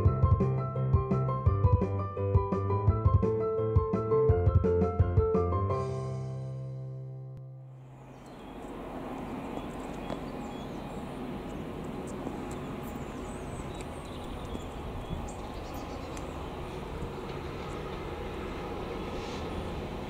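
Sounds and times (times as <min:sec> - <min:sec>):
small birds chirping: 0:07.8 - 0:17.9.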